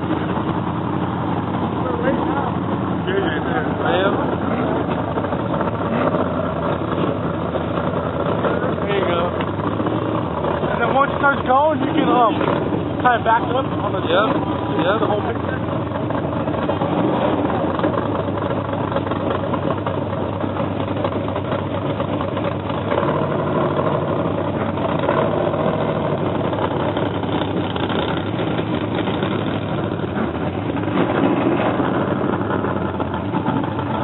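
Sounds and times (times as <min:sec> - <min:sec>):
truck engine running: 0:00.0 - 0:34.0.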